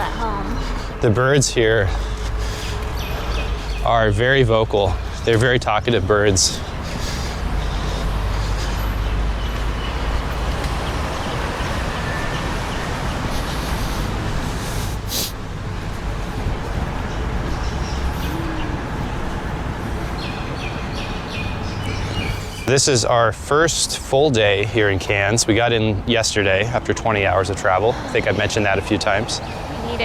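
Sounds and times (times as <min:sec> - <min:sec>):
street traffic rumble: 0:00.0 - 0:30.0
faint bird calls: 0:17.0 - 0:19.5.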